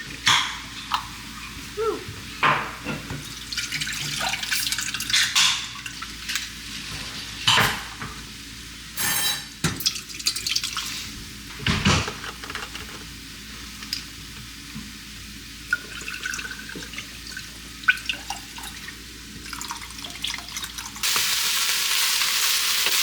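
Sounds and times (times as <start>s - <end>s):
pots and pans clattering: 2.4s - 8.2s, 11.5s - 13.1s
chicken sizzling in a pan: 21.0s - 23.0s.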